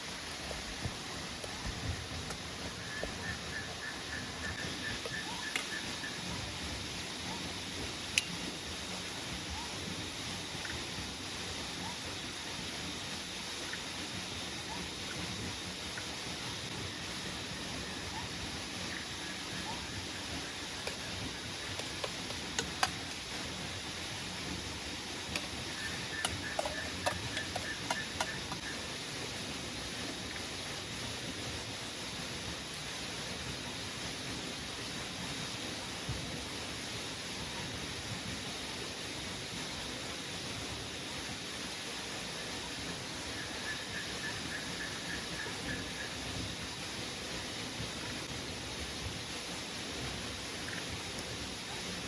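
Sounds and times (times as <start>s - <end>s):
rain falling: 0.0s - 52.0s
sharp clicks and ticks: 21.7s - 23.2s, 25.3s - 28.7s.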